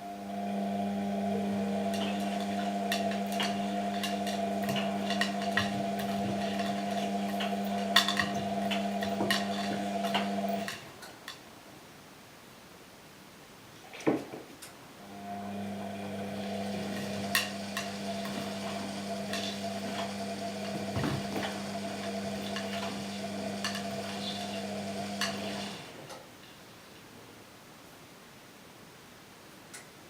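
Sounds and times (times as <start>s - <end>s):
washing machine motor hum: 0.0s - 11.0s, 15.0s - 26.1s.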